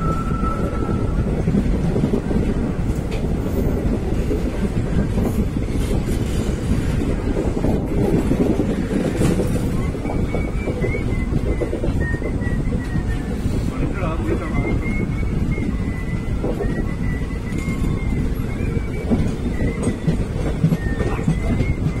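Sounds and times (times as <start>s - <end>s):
train wheels rumbling on rails: 0.0s - 22.0s
clatter over rail joints: 4.1s - 11.2s.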